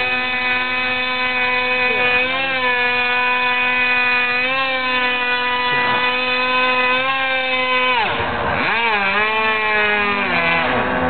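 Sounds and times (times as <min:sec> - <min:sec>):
model plane engine running: 0:00.0 - 0:11.0.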